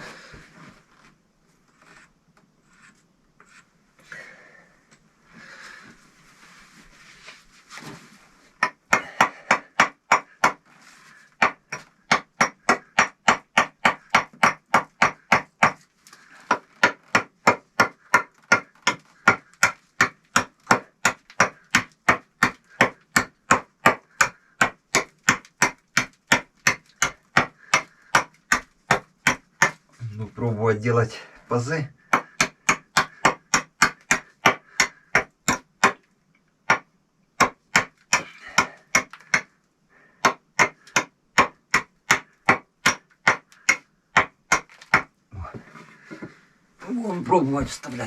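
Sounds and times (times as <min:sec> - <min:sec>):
hammer striking chisel into brick: 0:11.4 - 0:15.8, 0:32.1 - 0:36.0, 0:40.2 - 0:45.1.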